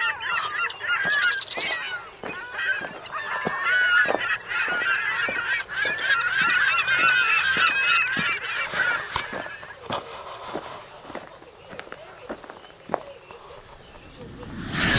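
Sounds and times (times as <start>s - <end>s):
geese honking: 0.0s - 10.0s.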